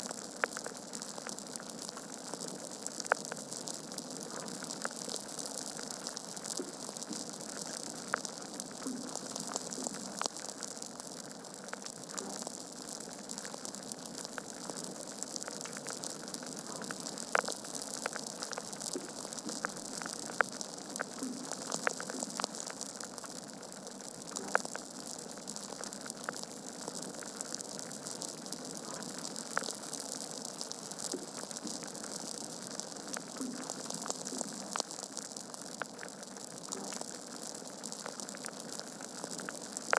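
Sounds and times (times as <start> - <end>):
logs crackling in fireplace: 0.4 - 39.9.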